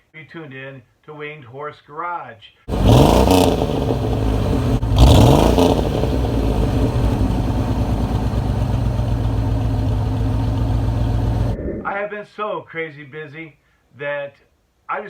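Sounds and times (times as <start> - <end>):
car engine revving: 2.7 - 11.7.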